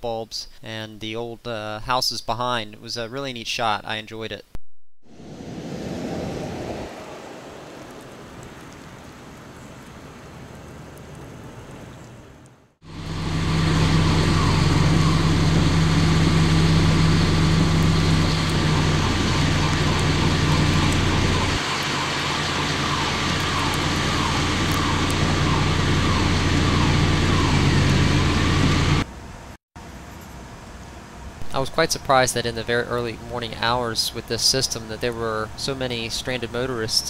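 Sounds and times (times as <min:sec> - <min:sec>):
vehicle engine running: 0:12.8 - 0:29.1
falling warning tone: 0:12.9 - 0:29.0.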